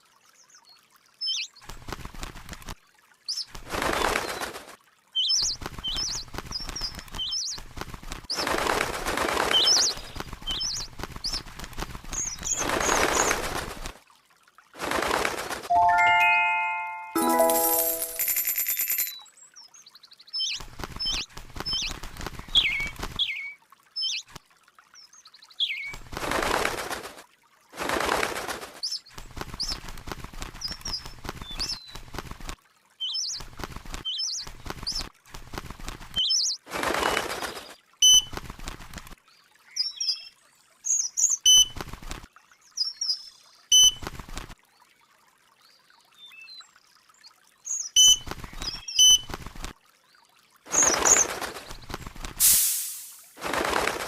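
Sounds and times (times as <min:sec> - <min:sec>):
loud rustling bursts: 0:50.7 - 0:54.0.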